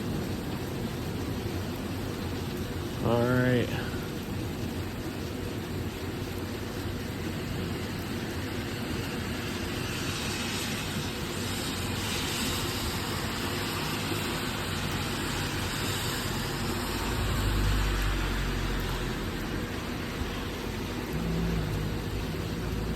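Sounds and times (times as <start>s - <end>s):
heavy rain and wind: 0.0s - 22.9s
deep low thunder rumble: 20.2s - 22.9s.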